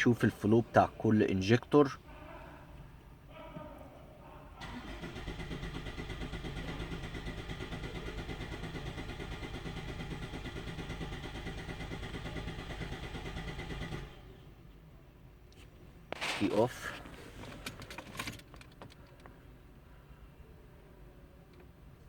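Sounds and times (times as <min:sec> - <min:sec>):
car engine pulsing: 0:04.6 - 0:14.4.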